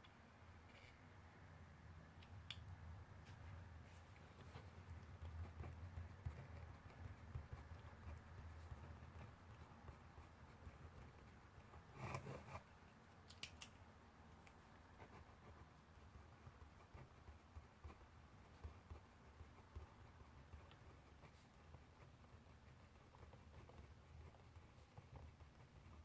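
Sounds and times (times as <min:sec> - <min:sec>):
low room hum: 0:00.0 - 0:26.0
pencil on paper: 0:03.9 - 0:12.9, 0:14.7 - 0:26.0.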